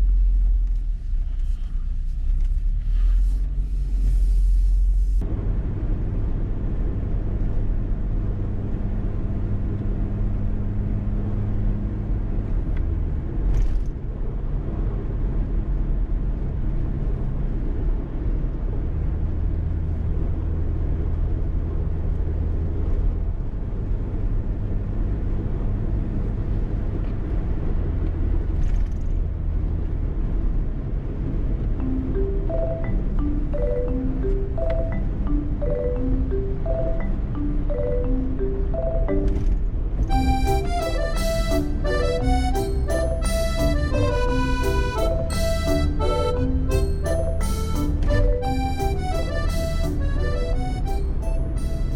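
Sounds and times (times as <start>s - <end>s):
vehicle engine and road rumble: 0.0s - 51.9s.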